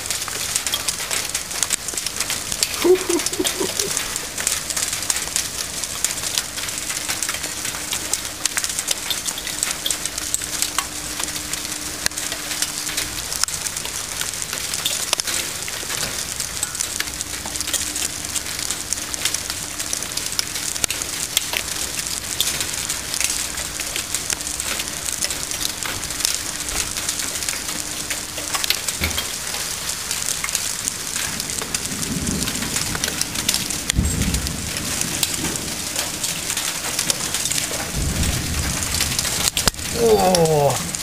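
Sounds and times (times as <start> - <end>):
hail and rain pelting down: 0.0 - 41.0
hailstones clicking on hard surfaces: 0.0 - 41.0
deep low thunder rumbles: 31.8 - 40.0.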